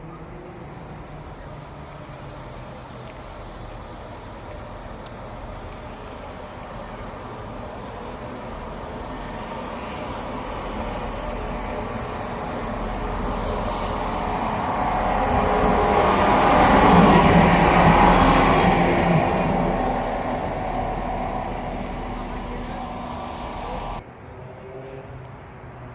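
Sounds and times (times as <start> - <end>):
train approaching: 0.0 - 25.8.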